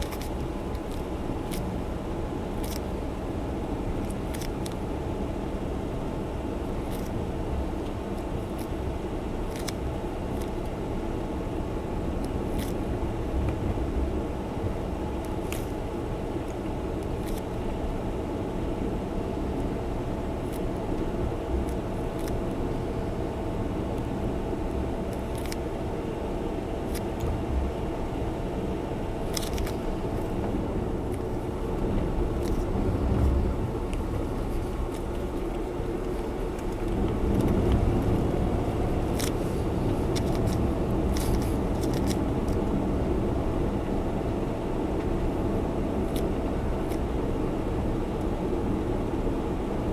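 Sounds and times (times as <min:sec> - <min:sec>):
small ticks and clicks: 0:00.0 - 0:01.7, 0:02.6 - 0:02.9, 0:04.0 - 0:04.8, 0:06.9 - 0:07.2, 0:09.5 - 0:10.8, 0:12.2 - 0:12.8, 0:16.5 - 0:17.5, 0:21.6 - 0:22.4, 0:25.1 - 0:25.6, 0:29.3 - 0:30.3
car engine and road noise: 0:00.0 - 0:49.9.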